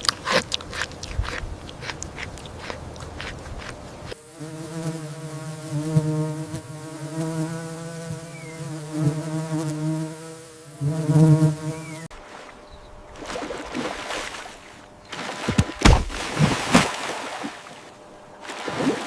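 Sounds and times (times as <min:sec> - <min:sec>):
flying insect buzzing: 0:03.6 - 0:15.0.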